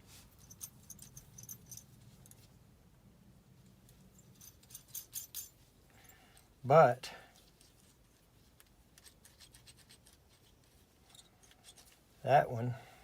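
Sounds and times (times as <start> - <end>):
nut driver clicking and scraping: 7.4 - 12.0.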